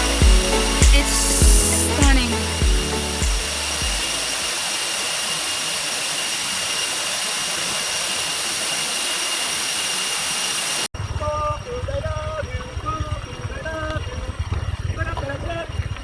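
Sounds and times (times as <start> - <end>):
music beat: 0.0 - 4.3
waterfall rushing: 0.0 - 10.9.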